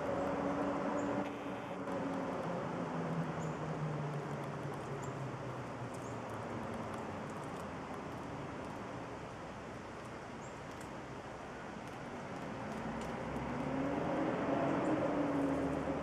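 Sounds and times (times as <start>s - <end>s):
small clicks: 10.0s - 11.0s, 11.8s - 13.7s.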